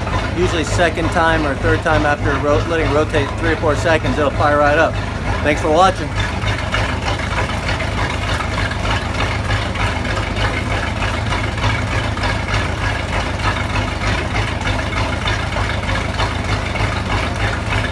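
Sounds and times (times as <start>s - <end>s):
boat engine idling: 0.0s - 17.9s.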